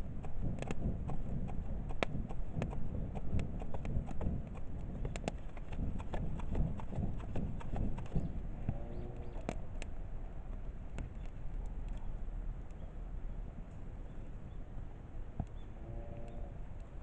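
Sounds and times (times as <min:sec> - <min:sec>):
wood fire crackling: 0:00.0 - 0:12.8
low rumble of flames: 0:00.0 - 0:17.0.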